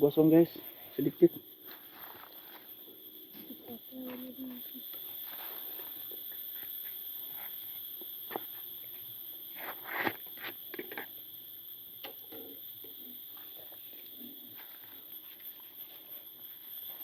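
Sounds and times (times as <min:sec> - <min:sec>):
forest insects droning: 0:00.0 - 0:17.0.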